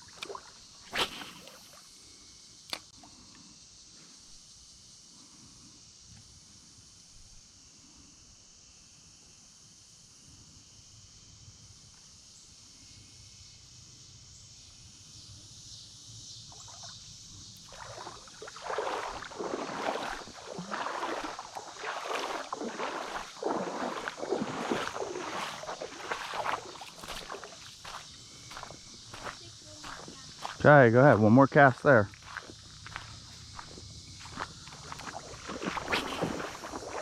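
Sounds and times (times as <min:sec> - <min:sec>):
sloshing steps wading through water: 0:00.0 - 0:01.8, 0:17.6 - 0:30.6, 0:32.1 - 0:37.0
faint outdoor background: 0:00.0 - 0:37.0.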